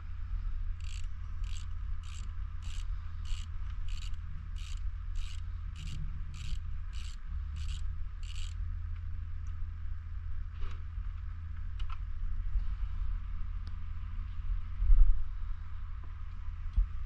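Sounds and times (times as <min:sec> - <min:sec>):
steady low rumble: 0:00.0 - 0:17.0
ratchet wrench clicking: 0:00.8 - 0:08.6.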